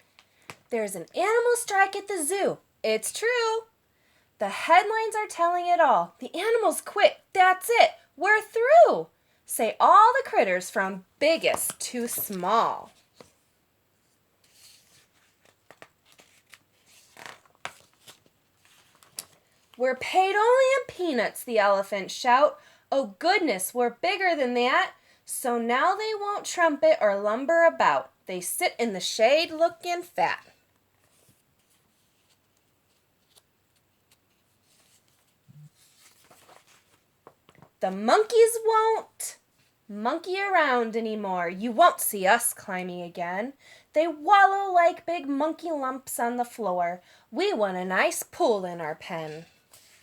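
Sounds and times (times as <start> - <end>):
faint paper rustling: 11.2 - 19.8, 30.4 - 37.9, 39.5 - 39.8, 49.2 - 50.0
rustles: 31.0 - 37.8.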